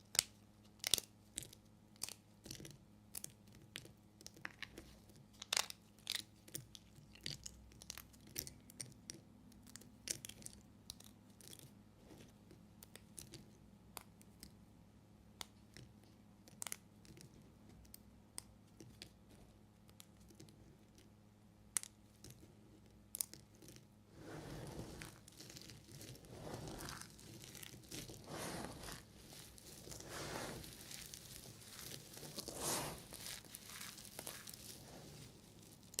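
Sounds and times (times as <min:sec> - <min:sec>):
knife cutting dry soap: 0:24.1 - 0:36.0
crunching and crinkling: 0:24.6 - 0:36.0.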